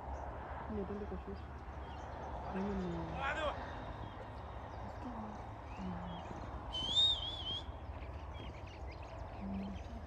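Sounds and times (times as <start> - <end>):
outdoor background noise: 0.0 - 10.0
wavering whistle: 6.7 - 7.7.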